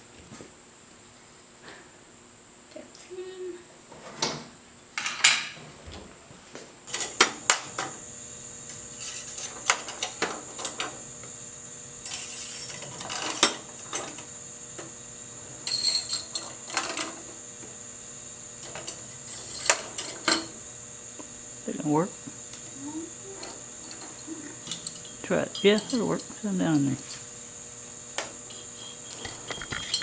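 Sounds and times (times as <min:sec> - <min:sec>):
metal parts clinking: 0:24.6 - 0:26.4, 0:28.8 - 0:30.0.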